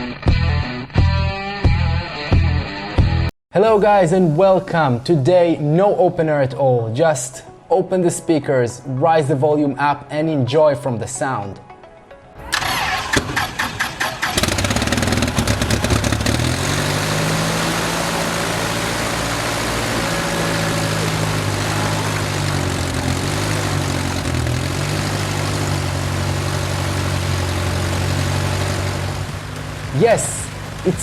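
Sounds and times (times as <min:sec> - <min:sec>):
piston engine running: 0:12.5 - 0:31.0
starter cranking engine: 0:12.5 - 0:31.0.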